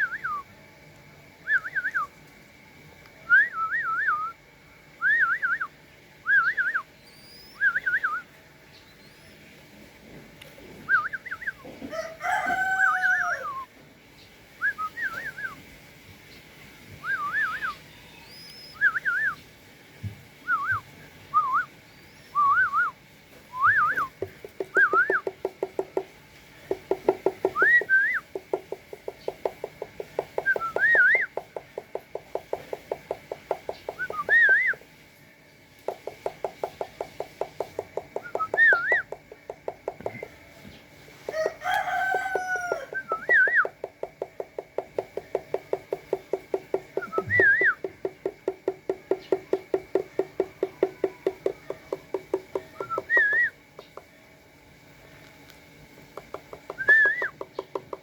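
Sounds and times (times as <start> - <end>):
rising and falling whistles: 0.0 - 0.5, 1.4 - 2.1, 3.2 - 4.4, 5.0 - 8.3, 10.9 - 11.6, 14.6 - 15.6, 17.0 - 19.4, 20.4 - 25.3, 27.6 - 28.2, 30.4 - 31.3, 34.0 - 34.8, 38.2 - 39.1, 42.9 - 43.8, 47.0 - 47.8, 52.8 - 53.6, 56.8 - 57.4
rooster crowing: 11.8 - 13.7, 41.2 - 43.6, 50.2 - 52.1
rapid pulsing bird chatter: 24.0 - 34.8, 35.8 - 54.2, 56.2 - 58.0.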